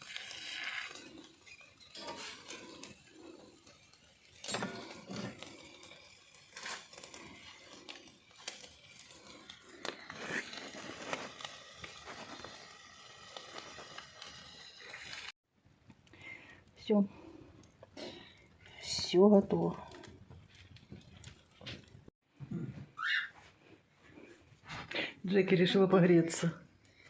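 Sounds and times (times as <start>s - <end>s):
utensils and dishes clinking: 0.9s - 6.0s.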